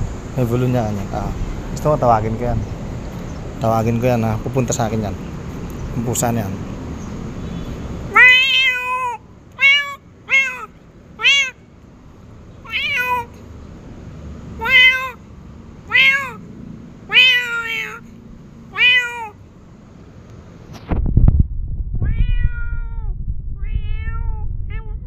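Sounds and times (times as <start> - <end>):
cat meowing: 8.1 - 11.6, 12.6 - 13.4, 14.6 - 15.2, 15.8 - 16.5, 17.1 - 19.4, 22.0 - 25.0.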